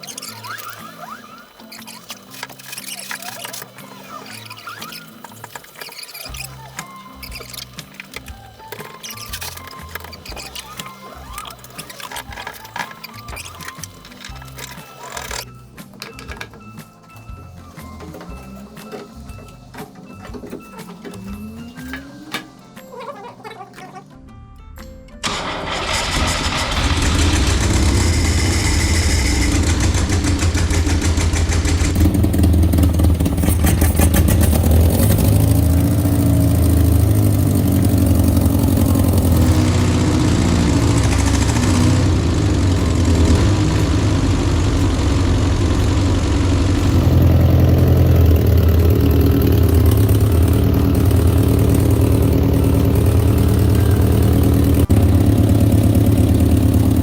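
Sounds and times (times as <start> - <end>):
car engine running: 25.2 - 57.0.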